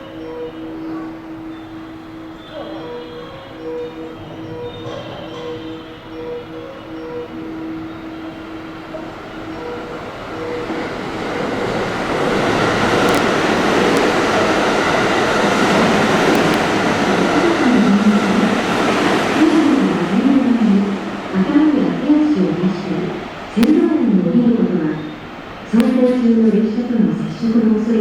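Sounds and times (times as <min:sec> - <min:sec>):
electric train rolling: 0:00.0 - 0:28.0
train wavering whine: 0:00.0 - 0:28.0.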